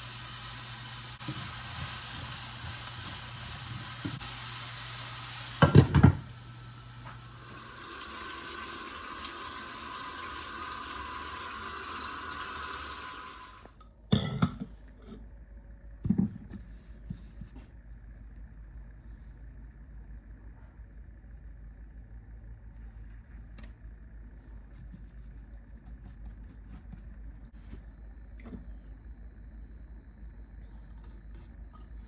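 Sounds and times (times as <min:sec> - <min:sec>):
tap water running into sink: 0:05.6 - 0:06.2, 0:07.2 - 0:13.8.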